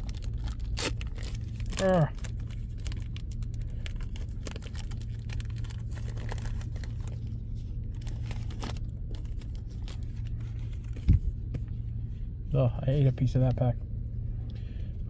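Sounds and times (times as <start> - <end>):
wrapper crinkling and tearing: 0.0 - 11.0
steady low hum: 0.0 - 15.0.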